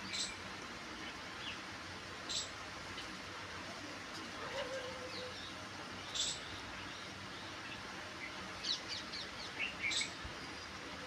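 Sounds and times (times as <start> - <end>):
background hiss: 0.0 - 11.0
birds chirping: 5.0 - 10.8.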